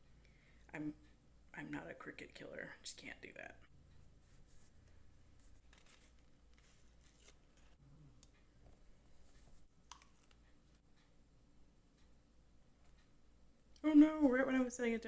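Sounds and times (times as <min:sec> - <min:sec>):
faint clicks and paper rustles: 0:04.2 - 0:11.1.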